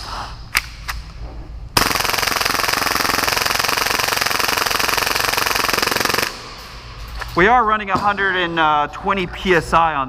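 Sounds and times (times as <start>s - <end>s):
airsoft pistol firing full-auto: 1.8s - 6.5s.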